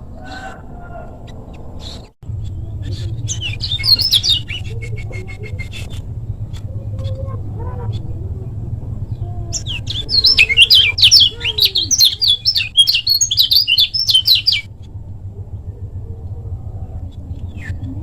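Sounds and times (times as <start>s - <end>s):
steady low hum: 0.0s - 18.0s
bird chirping rapidly: 1.2s - 7.2s, 9.5s - 14.7s.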